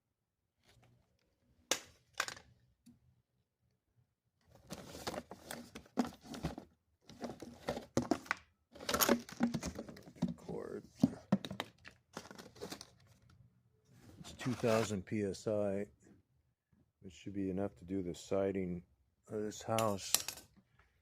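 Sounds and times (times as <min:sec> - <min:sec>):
packaging rustling and knocking: 0:04.6 - 0:13.1
packaging sharp knocks: 0:07.8 - 0:10.4.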